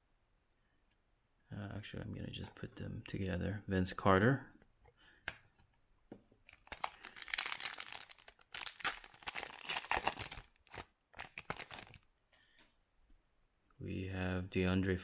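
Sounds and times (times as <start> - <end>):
trading cards rustling: 6.5 - 12.1.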